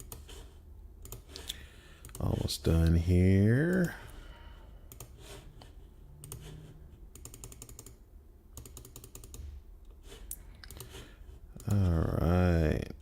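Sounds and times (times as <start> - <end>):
computer keyboard typing: 0.0 - 0.4, 1.0 - 2.4, 4.9 - 5.3, 7.1 - 9.5, 10.6 - 11.0, 11.6 - 12.0.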